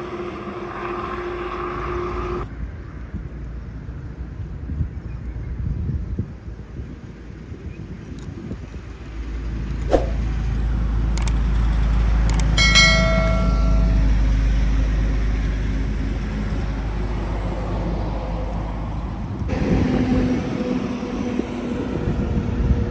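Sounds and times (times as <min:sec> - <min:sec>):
heavy truck passing: 0:00.0 - 0:02.5, 0:08.9 - 0:22.9
high-pitched ringing tone: 0:12.6 - 0:15.0.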